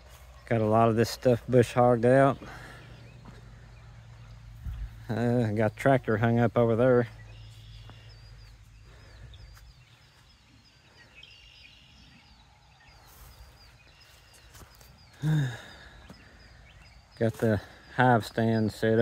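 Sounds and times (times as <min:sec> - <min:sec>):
small bird chirping: 0:00.0 - 0:19.0
man's voice: 0:00.5 - 0:02.6, 0:05.1 - 0:07.1.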